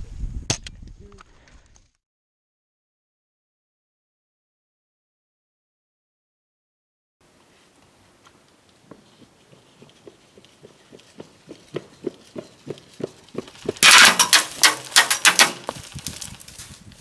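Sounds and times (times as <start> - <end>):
footsteps: 7.3 - 17.0
airsoft guns firing: 13.8 - 15.7.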